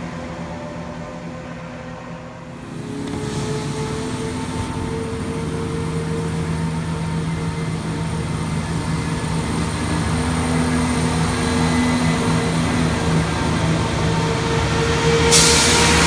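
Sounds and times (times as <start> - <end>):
diesel train engine drone: 0.0 - 16.0.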